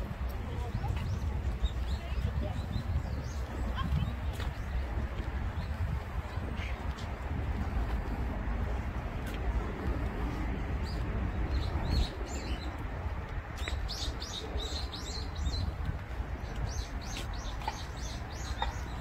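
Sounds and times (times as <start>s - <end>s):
small birds chirping: 16.4s - 19.0s.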